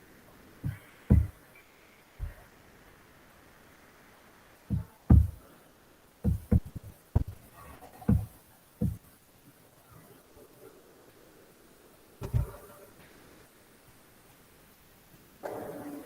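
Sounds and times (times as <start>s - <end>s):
faint steady hiss: 0.0s - 16.0s
dull knocks and thumps: 0.6s - 1.4s, 2.2s - 2.4s, 4.7s - 5.4s, 6.2s - 9.1s, 12.2s - 12.6s.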